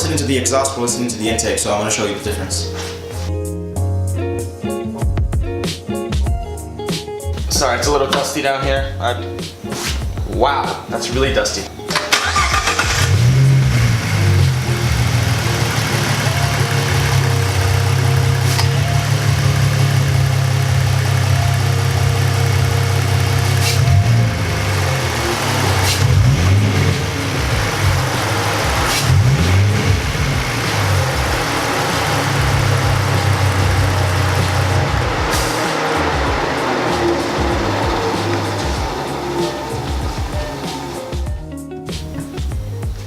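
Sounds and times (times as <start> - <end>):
car engine idling and revving: 11.7 - 43.0.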